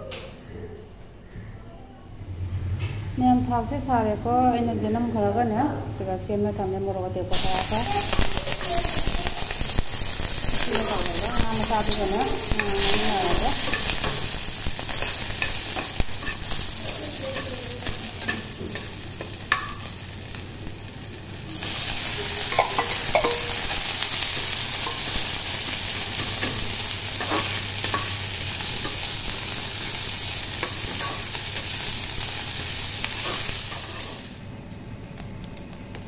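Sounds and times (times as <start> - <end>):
food sizzling in a wok: 7.3 - 34.6.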